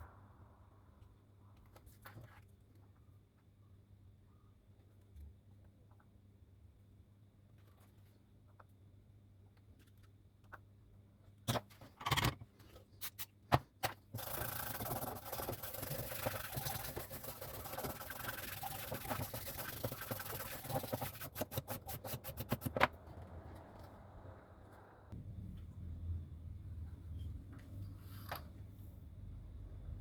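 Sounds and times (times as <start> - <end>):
scrubbing on hard surface: 14.2 - 22.7.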